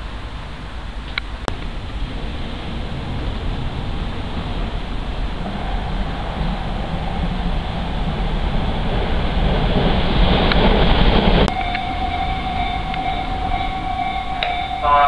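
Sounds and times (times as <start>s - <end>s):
train rumble: 0.0s - 15.0s
steady high tone: 11.5s - 15.0s.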